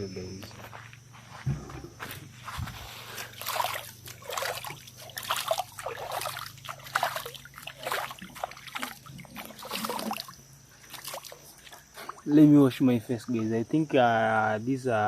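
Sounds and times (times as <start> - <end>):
water splashing and trickling: 3.1 - 13.8.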